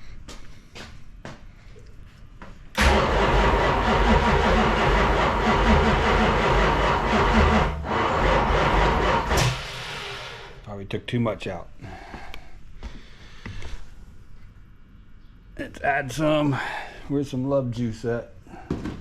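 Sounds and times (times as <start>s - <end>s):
engine cranking on starter: 2.8s - 10.6s.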